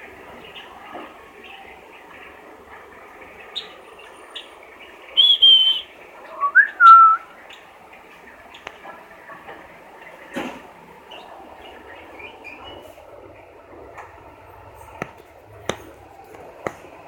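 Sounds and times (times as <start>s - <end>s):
eagle whistled calls: 5.1s - 7.3s.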